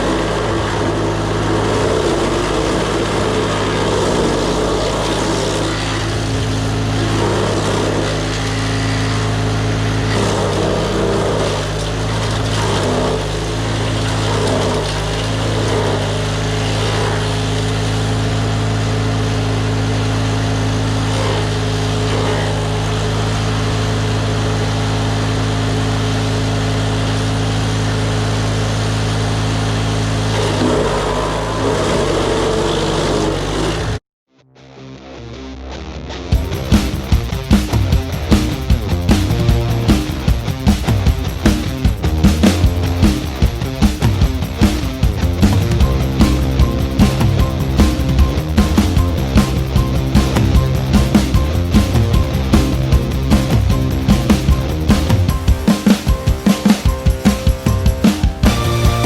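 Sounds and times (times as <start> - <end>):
wood chipper engine running: 0.0 - 34.0, 36.3 - 59.0.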